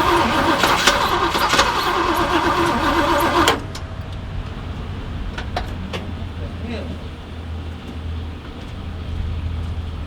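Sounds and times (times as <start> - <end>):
engine cranking on starter: 0.0 - 3.8.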